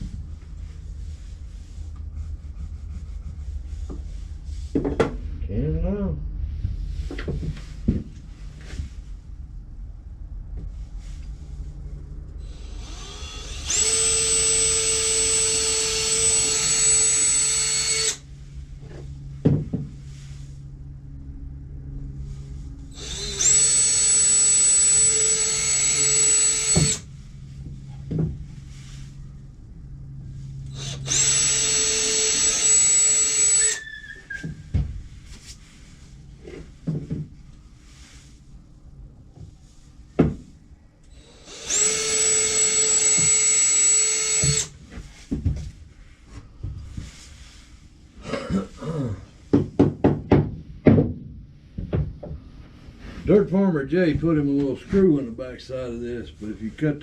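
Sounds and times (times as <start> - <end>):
power drill whining: 12.4 - 18.2, 22.9 - 27.1, 30.6 - 34.6, 41.1 - 44.8.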